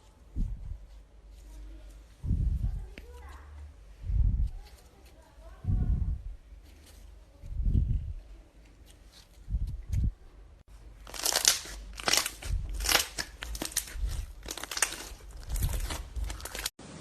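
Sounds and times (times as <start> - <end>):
slime crackling crunches: 10.9 - 16.7.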